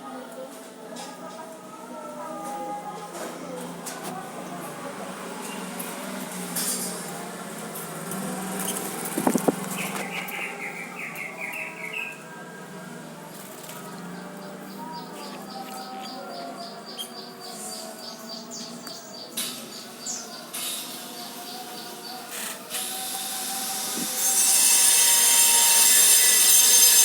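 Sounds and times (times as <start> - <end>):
small bird chirping: 8.5 - 12.2, 14.0 - 20.6.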